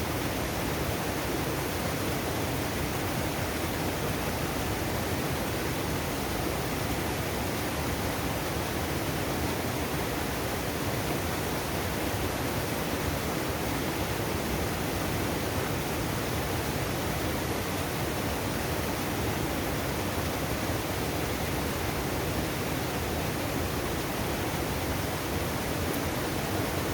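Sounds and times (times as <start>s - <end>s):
stream rushing over rocks: 0.0s - 26.9s.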